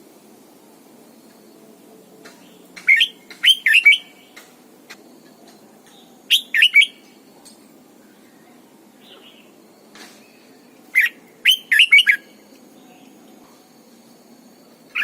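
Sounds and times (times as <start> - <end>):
bird whistling song: 2.5 - 4.3, 5.9 - 7.2, 10.2 - 12.4.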